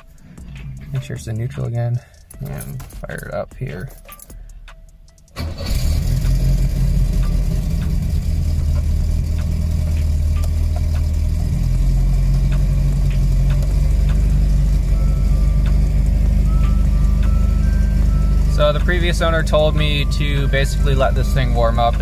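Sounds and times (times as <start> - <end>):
car engine starting: 0.0 - 3.3, 4.1 - 22.0
rough engine idling: 5.4 - 22.0.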